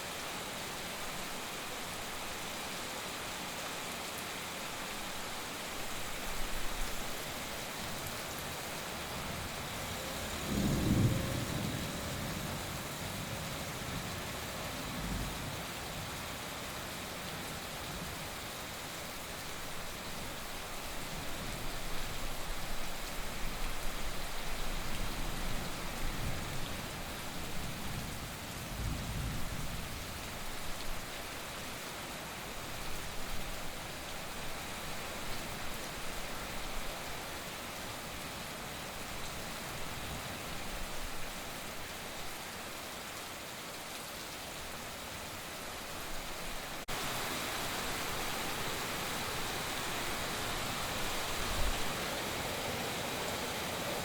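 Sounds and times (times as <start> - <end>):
heavy rain falling: 0.0 - 54.0
distant thunder rumbling: 9.2 - 13.4.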